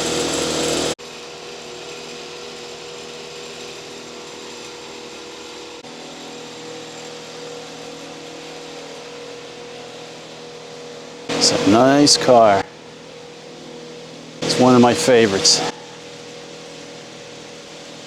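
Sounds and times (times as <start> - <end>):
faint steady whine: 11.3 - 12.7, 14.4 - 15.7.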